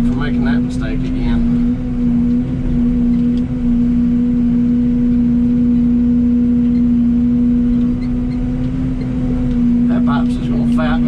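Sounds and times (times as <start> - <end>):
excavator engine whining: 0.0 - 11.0.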